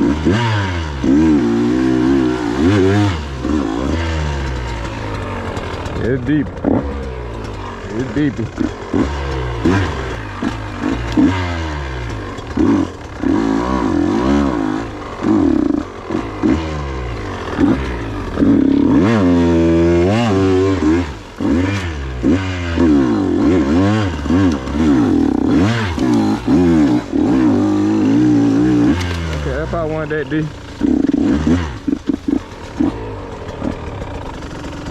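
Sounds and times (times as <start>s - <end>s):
two-stroke engine revving: 0.0s - 34.9s
bike pushing through water and mud: 17.6s - 34.9s.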